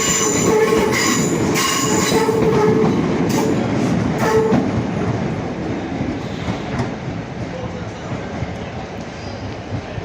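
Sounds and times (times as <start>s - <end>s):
train squealing tone: 0.0s - 3.6s
train wheels on rails: 0.0s - 10.0s.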